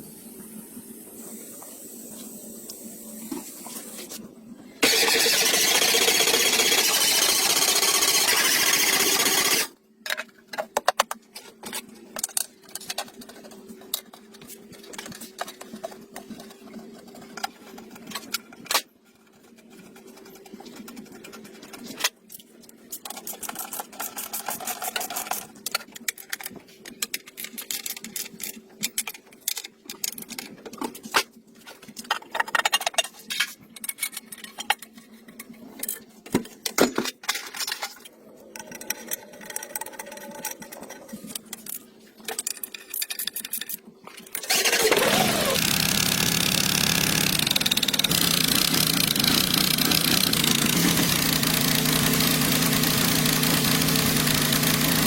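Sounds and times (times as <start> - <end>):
metallic clicks and rattles: 31.9 - 44.4.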